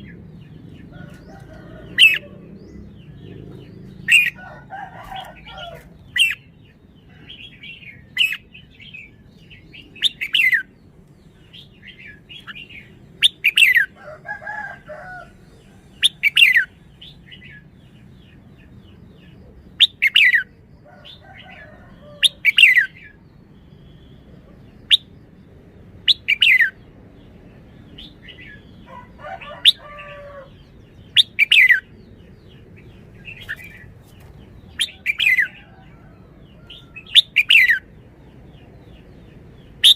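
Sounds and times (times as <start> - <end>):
bulbul calling: 1.3 - 6.5, 31.1 - 31.9, 36.7 - 37.9.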